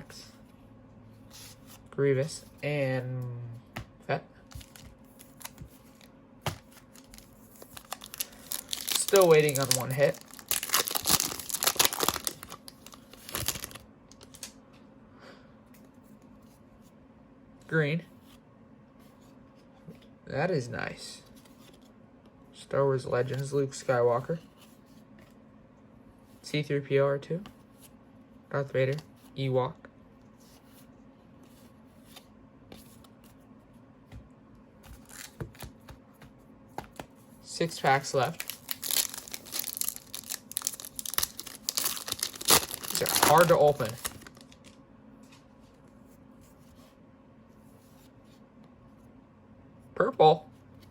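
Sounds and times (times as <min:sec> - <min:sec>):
trading cards clicking and rustling: 0:04.5 - 0:14.5, 0:38.2 - 0:44.8.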